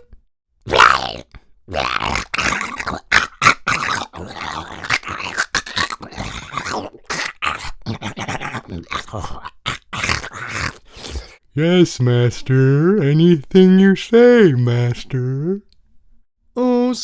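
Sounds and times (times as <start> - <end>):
man making creature growls: 0.7 - 11.4.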